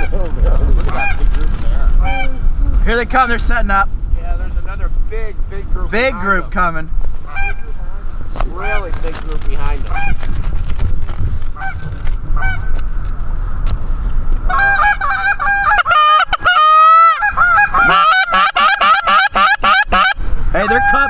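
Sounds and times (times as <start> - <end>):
geese honking and clucking: 0.0 - 2.6, 7.2 - 10.3, 11.6 - 12.8, 14.5 - 21.0
wind rumble on microphone: 0.0 - 21.0.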